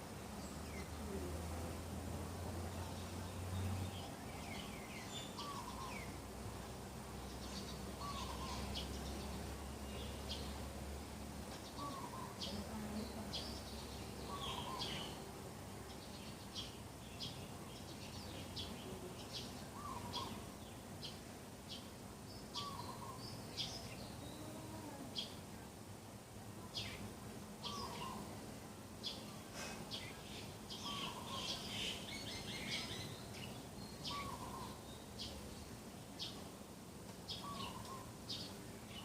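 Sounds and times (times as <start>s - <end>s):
birds chirping: 2.6s - 6.2s, 7.1s - 10.8s, 11.4s - 25.6s, 26.6s - 39.0s
lower bird call: 7.4s - 9.3s, 19.7s - 20.5s, 22.6s - 25.4s, 37.3s - 38.5s.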